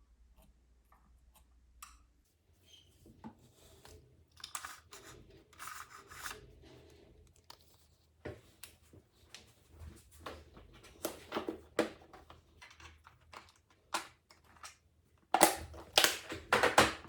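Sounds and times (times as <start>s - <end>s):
scraping and rubbing: 4.6s - 7.9s.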